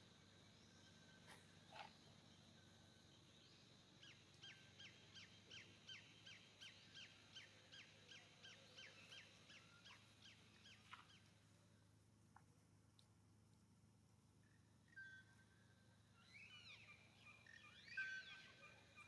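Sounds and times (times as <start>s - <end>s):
faint bird whistling: 14.5s - 19.0s.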